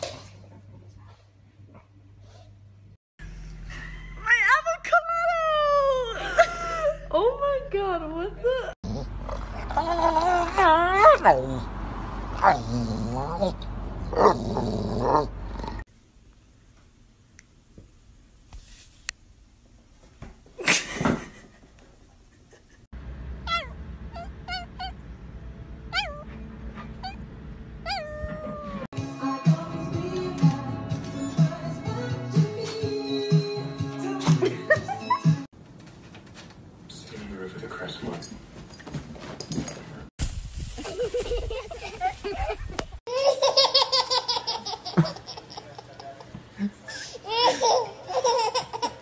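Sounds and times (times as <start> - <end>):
cat meowing: 25.9 - 26.3, 27.8 - 28.9
high-pitched laughter: 40.8 - 46.2.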